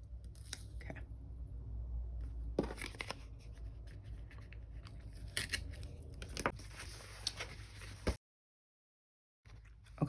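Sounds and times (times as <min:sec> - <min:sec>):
paper rustling and crinkling: 0:02.6 - 0:08.2.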